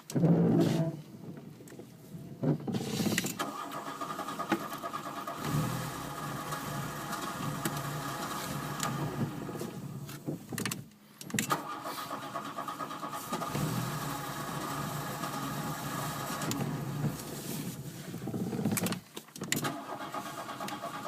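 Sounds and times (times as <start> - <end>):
car starter motor cranking: 3.1 - 10.1, 11.3 - 17.8, 18.5 - 21.0.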